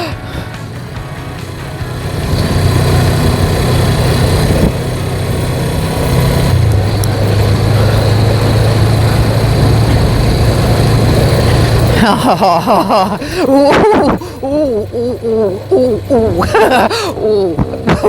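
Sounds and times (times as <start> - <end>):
motorcycle engine running: 0.0 - 18.0
road noise: 0.0 - 18.0
wind noise: 13.1 - 14.7, 16.2 - 18.0.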